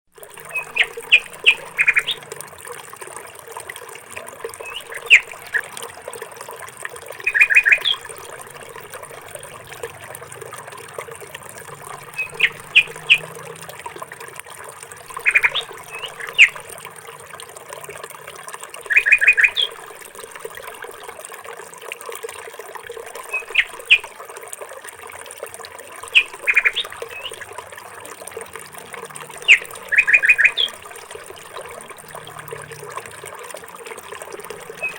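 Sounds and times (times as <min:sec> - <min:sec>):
bird chirping: 0:00.4 - 0:02.3, 0:04.6 - 0:05.7, 0:07.2 - 0:09.6, 0:11.8 - 0:13.6, 0:15.1 - 0:16.7, 0:18.9 - 0:19.8, 0:23.3 - 0:24.0, 0:26.1 - 0:27.4, 0:29.4 - 0:30.8.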